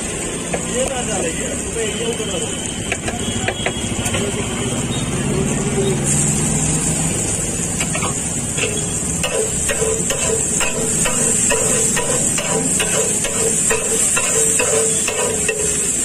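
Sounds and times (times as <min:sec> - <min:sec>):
vegetables sizzling in oil: 0:00.0 - 0:16.0
metal spatula scraping griddle: 0:07.8 - 0:16.0.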